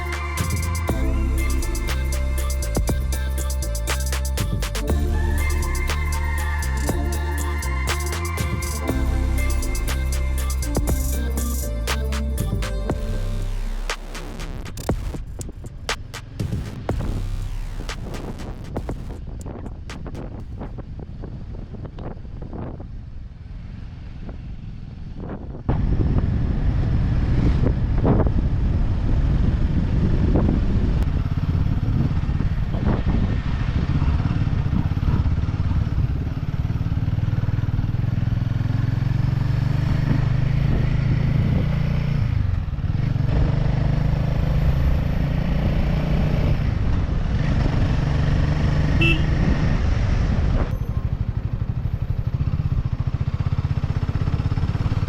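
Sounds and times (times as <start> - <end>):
wind on microphone: 24.2 - 37.6, 39.6 - 52.9
motorcycle engine running: 46.4 - 55.0.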